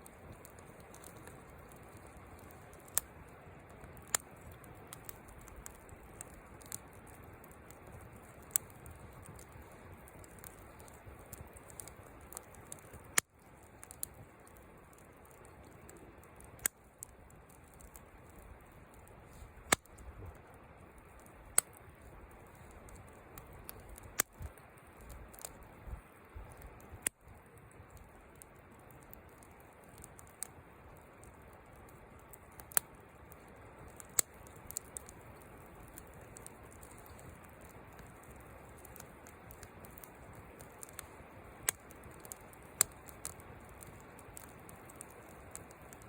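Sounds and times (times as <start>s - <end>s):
low steady hiss: 0.0s - 46.0s
wood fire crackling: 0.0s - 46.0s
sharp pops: 19.6s - 20.0s.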